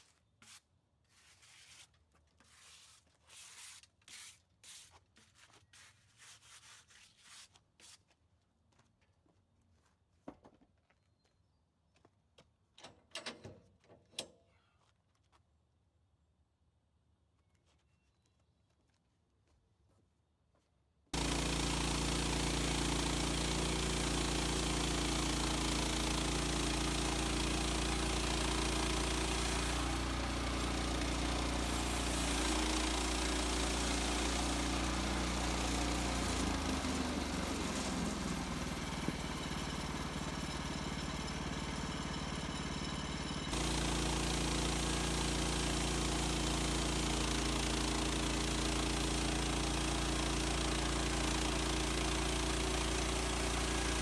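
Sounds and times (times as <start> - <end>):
sawmill gas engine running: 21.2 - 54.0.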